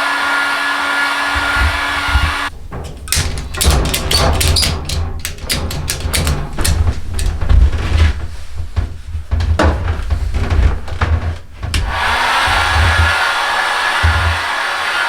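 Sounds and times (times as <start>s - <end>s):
hand tool scraping wood: 1.2s - 15.0s
steady blowing hiss: 10.0s - 15.0s.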